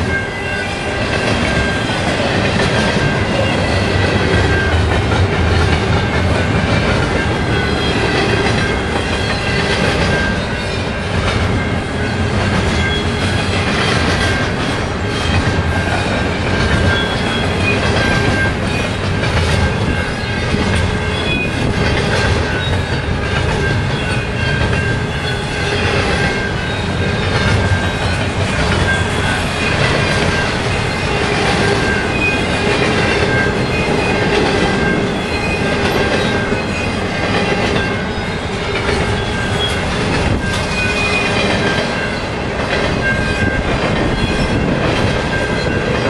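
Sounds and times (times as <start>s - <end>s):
train wheels rumbling on rails: 0.0s - 46.0s
wheels squealing: 0.0s - 46.0s.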